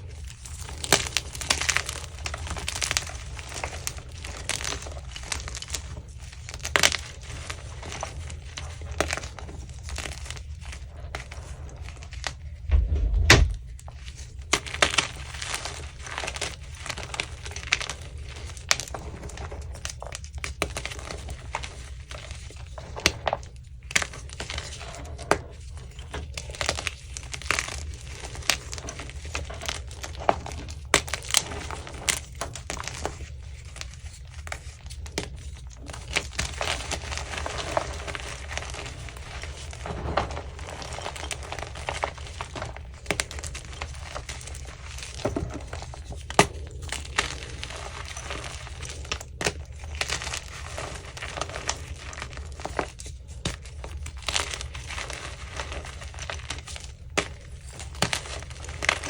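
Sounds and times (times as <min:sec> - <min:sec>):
low hum: 0:12.5 - 0:14.0
chalk being crushed: 0:33.8 - 0:59.0.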